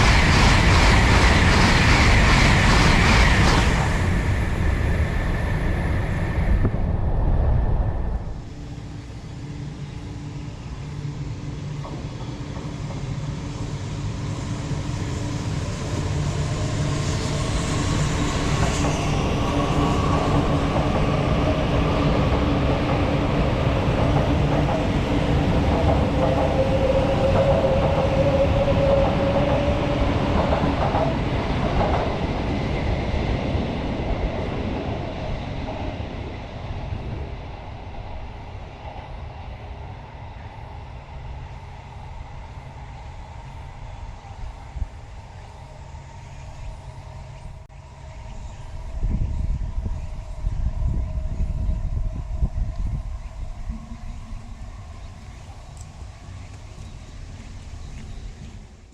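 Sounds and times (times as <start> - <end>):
train passing with rumble: 0.0 - 58.9
rising whine: 3.3 - 12.2, 42.2 - 58.3.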